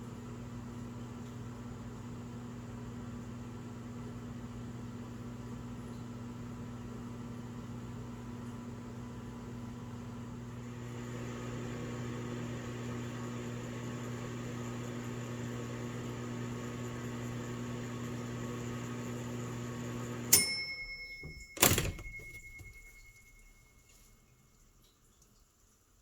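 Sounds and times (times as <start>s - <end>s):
microwave oven humming: 0.0s - 24.7s
microwave switch click: 20.3s - 22.7s
bell ding: 20.3s - 24.0s.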